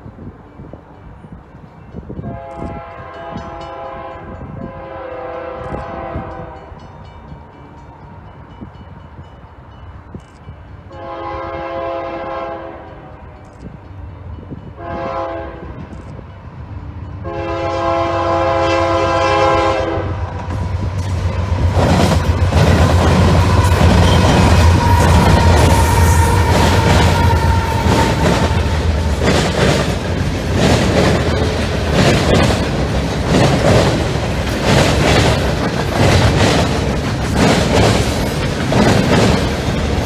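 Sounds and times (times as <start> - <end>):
low rumble of train: 0.0 - 40.0
locomotive air horn blasts: 2.2 - 6.8, 11.0 - 13.4, 14.8 - 15.8, 17.2 - 20.3, 22.6 - 29.4.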